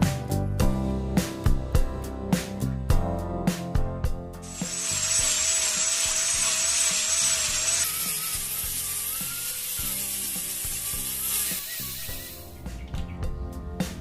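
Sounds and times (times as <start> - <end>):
background music: 0.0 - 6.3, 7.0 - 14.0
hiss of cutting bamboo: 4.4 - 12.6
power tool whining: 4.4 - 12.6.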